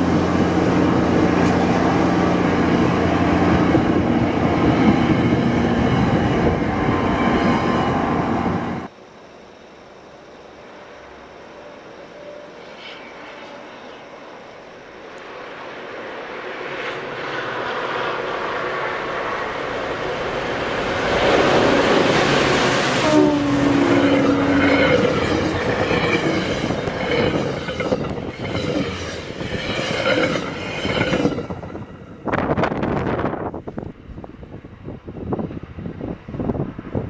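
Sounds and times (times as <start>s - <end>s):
diesel train passing: 0.0s - 8.9s, 9.6s - 37.0s.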